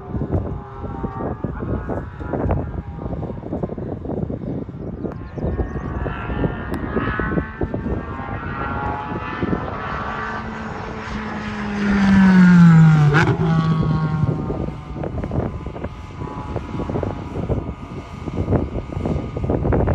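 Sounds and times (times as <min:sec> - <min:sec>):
race car engine passing: 0:05.8 - 0:19.9.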